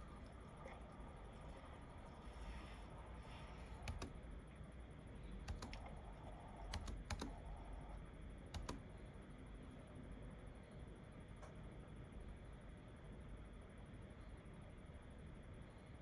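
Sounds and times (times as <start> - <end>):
faint room hum: 0.0 - 16.0
keyboard keystrokes: 3.7 - 4.2, 5.5 - 8.9.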